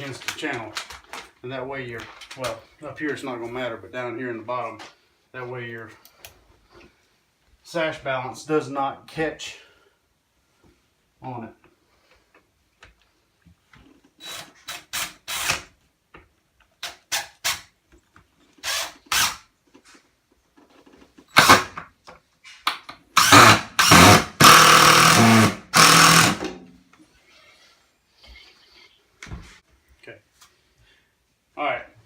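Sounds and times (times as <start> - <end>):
drill driving screws: 14.2 - 15.7, 16.8 - 17.7, 18.6 - 19.5, 21.3 - 21.8, 23.2 - 26.6.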